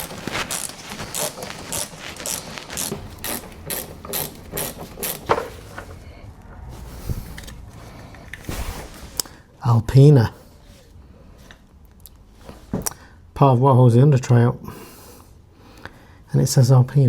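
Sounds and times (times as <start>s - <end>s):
hand ratchet clicking: 0.0s - 5.3s.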